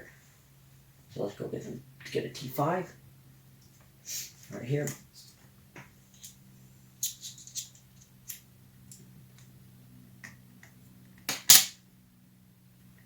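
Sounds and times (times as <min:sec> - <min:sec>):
faint steady hum: 0:00.0 - 0:13.0
sharp loud click: 0:11.3 - 0:11.8.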